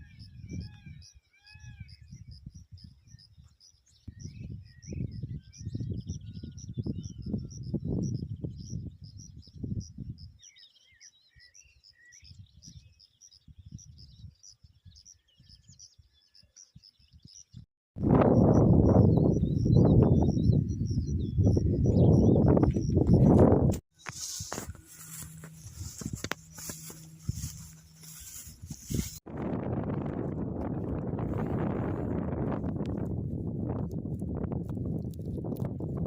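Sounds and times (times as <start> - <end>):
wind rumbling on microphone: 0.0 - 10.5, 12.3 - 15.9, 17.1 - 36.0
birds chirping: 18.3 - 29.2.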